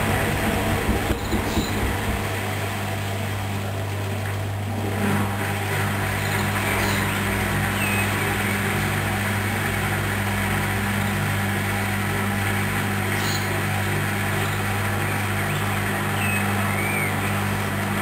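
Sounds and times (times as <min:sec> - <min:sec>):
washing machine humming: 0:00.0 - 0:18.0.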